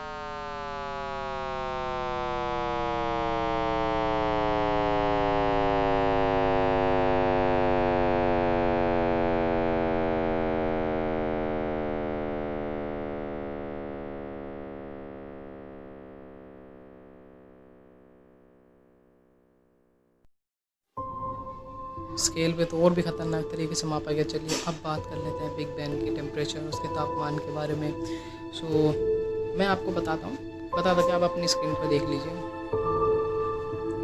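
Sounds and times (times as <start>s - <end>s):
electronic tone sliding down: 0.0s - 20.3s.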